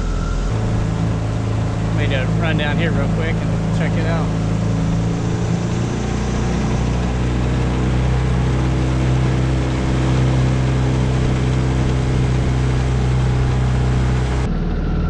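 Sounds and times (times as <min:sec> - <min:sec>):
outboard motor running: 0:00.0 - 0:15.0
water against hull: 0:06.9 - 0:14.5.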